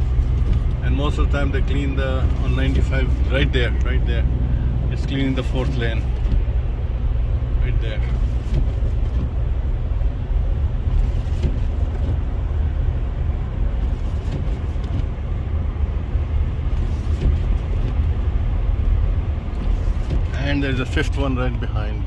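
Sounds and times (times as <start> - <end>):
car road rumble: 0.0 - 22.0.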